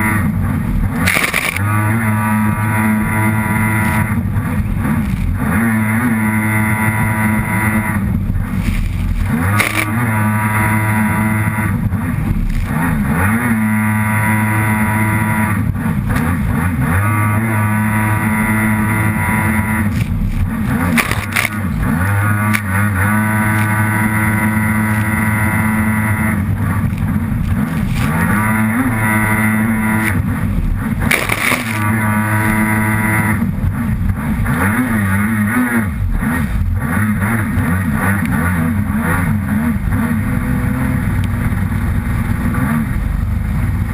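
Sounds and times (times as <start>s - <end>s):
jet ski engine running hard: 0.0s - 43.9s
bursts of rushing noise: 17.2s - 34.4s.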